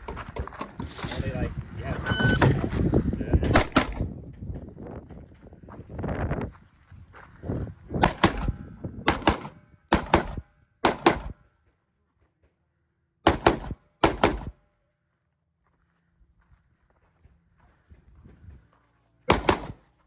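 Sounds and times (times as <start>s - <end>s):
gunshots in double taps: 3.5s - 4.1s, 8.0s - 11.4s, 13.2s - 14.6s, 19.3s - 19.9s.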